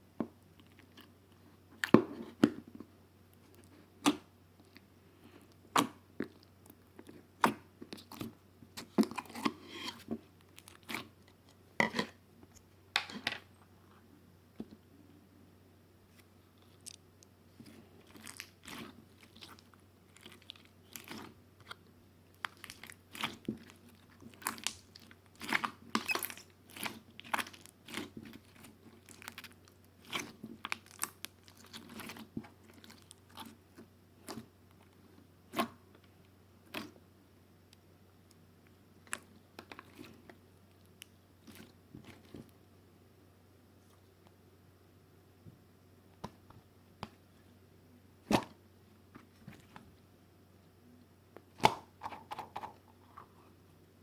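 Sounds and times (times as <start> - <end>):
crunchy bites and chewing: 17.6 - 34.5.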